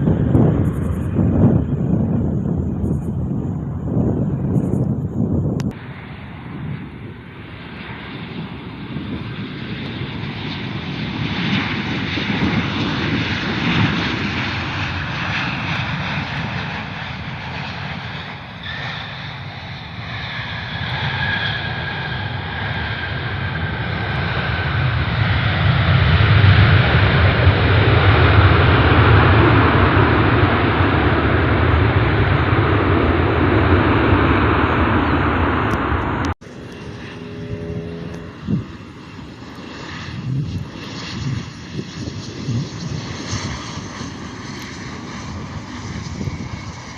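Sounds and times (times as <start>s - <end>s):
airliner engines whining: 0.0s - 46.9s
loud steady engine rumble: 35.4s - 40.8s.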